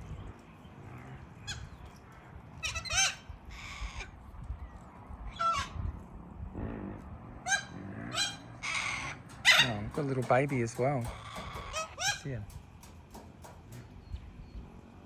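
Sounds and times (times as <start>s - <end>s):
corellas squawking: 1.0s - 4.2s, 5.3s - 6.0s, 6.8s - 13.9s
bird screeching: 1.4s - 4.2s, 5.2s - 6.0s, 7.4s - 10.2s, 11.0s - 12.6s.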